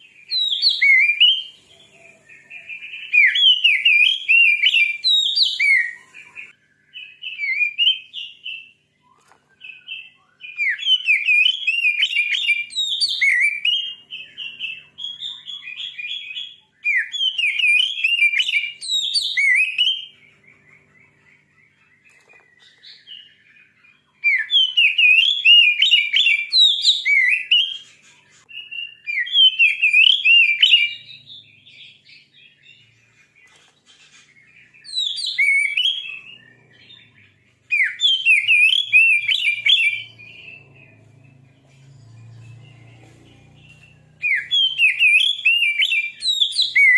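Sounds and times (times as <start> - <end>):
bird singing whistles and chatter: 0.0 - 46.9.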